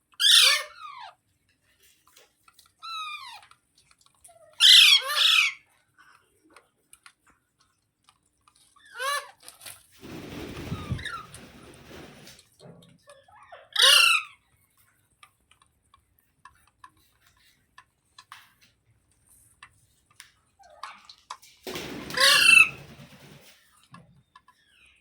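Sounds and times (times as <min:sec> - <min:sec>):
parakeet squawking harshly: 0:13.7 - 0:14.3, 0:22.1 - 0:22.8.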